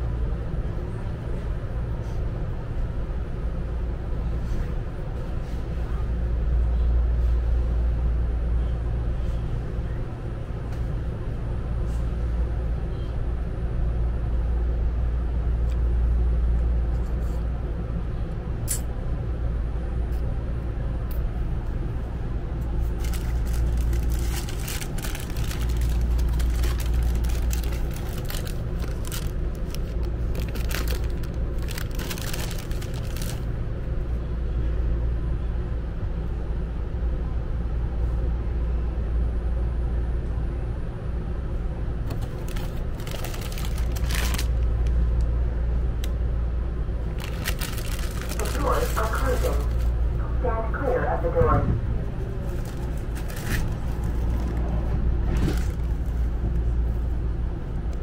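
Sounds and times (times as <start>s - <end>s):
train interior rumble: 0.0s - 58.0s
crackly rustling and clicks: 23.0s - 33.4s, 42.1s - 45.0s.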